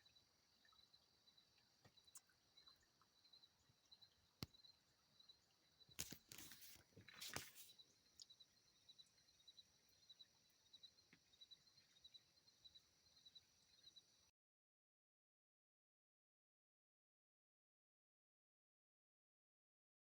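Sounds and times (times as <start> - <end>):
insects chirring: 0.0 - 14.3.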